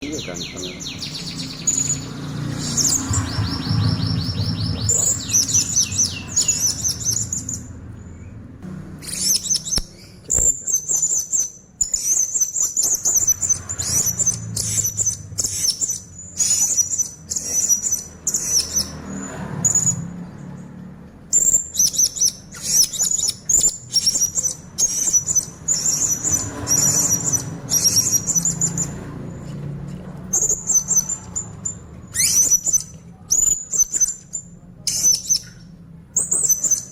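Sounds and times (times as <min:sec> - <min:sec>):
parrot chirping and trilling: 0:00.0 - 0:36.9.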